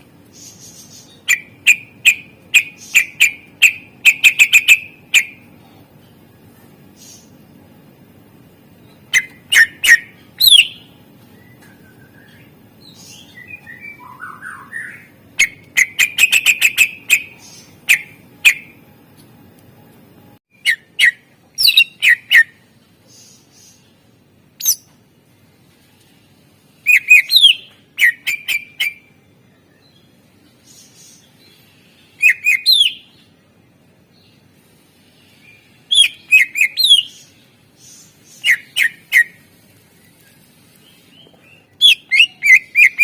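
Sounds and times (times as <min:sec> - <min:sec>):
bird singing whistled notes: 0:09.0 - 0:18.8, 0:20.5 - 0:22.6, 0:24.6 - 0:24.9, 0:26.8 - 0:30.1, 0:32.0 - 0:33.3, 0:35.3 - 0:39.4, 0:40.8 - 0:43.0.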